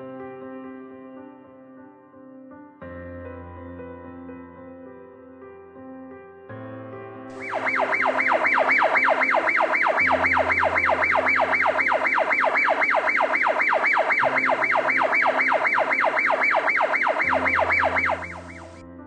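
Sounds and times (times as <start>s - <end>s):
electronic yelp siren wailing: 7.4s - 18.8s
background music low notes: 7.4s - 19.0s.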